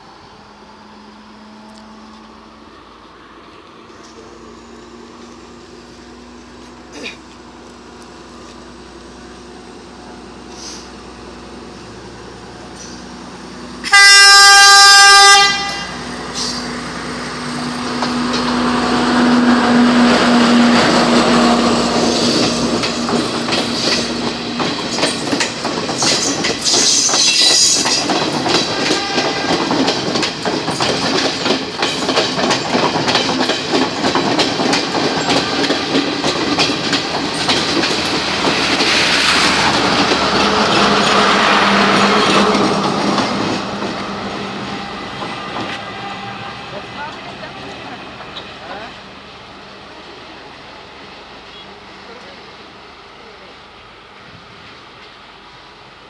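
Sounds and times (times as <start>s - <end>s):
train horn blast: 13.8s - 16.1s, 28.7s - 29.7s, 45.7s - 47.0s
train wheels clacking on rail joints: 17.4s - 46.3s.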